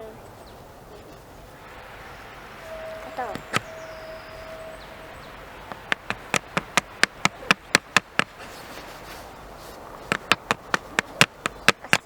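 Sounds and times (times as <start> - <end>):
sharp taps: 3.2 - 3.8, 5.6 - 8.9, 10.0 - 12.0.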